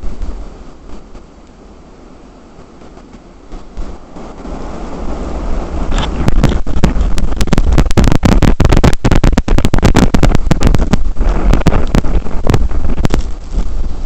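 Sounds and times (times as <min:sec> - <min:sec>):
blizzard wind buffeting microphone: 0:00.0 - 0:14.0
crackling pops of overloaded mic: 0:05.9 - 0:13.8.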